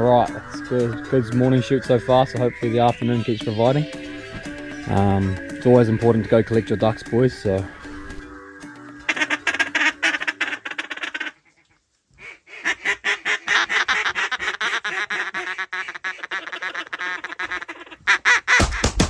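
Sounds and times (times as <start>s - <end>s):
duck call quacking: 9.0s - 11.6s, 12.2s - 19.0s.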